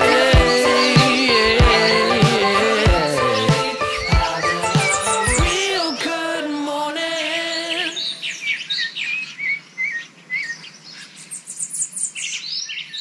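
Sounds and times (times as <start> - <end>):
held music chord: 0.0 - 5.8
songbirds chirping: 0.0 - 13.0.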